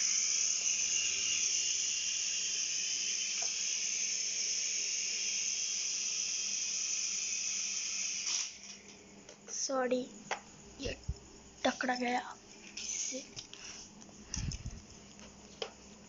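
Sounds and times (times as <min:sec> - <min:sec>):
toy helicopter rotor whirring: 0:00.0 - 0:08.8, 0:11.7 - 0:13.5, 0:14.3 - 0:14.8.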